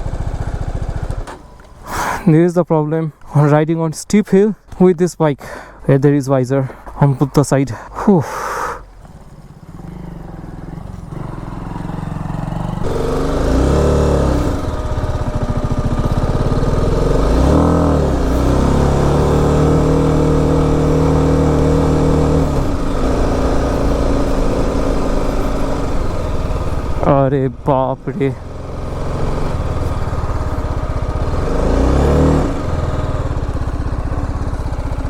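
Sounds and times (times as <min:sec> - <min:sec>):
motorcycle engine revving under load: 0:00.0 - 0:01.8, 0:08.8 - 0:35.0.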